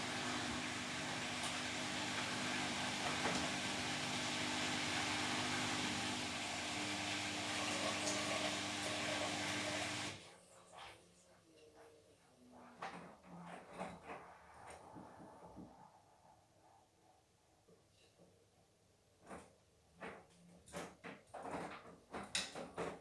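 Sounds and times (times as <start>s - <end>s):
washing machine whirring: 0.0s - 10.3s.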